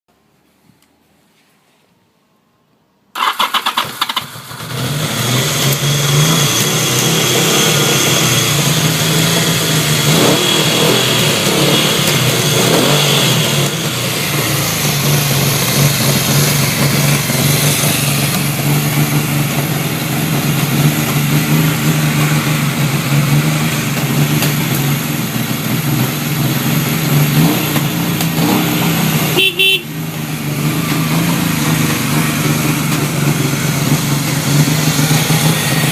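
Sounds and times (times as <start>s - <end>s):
electric starter cranking: 3.2s - 8.7s
motorcycle engine running: 3.8s - 35.9s.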